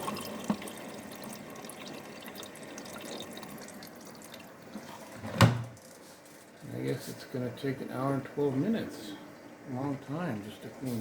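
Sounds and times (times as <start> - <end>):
water filling washing machine: 0.0 - 6.0.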